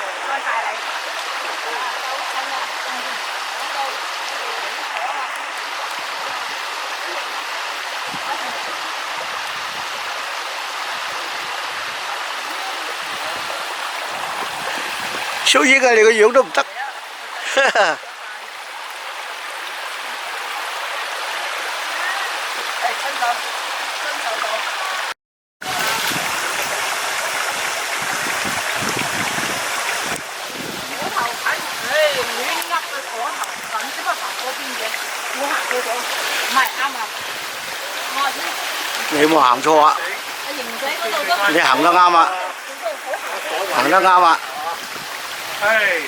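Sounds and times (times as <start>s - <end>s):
stream water rushing: 0.0s - 46.0s.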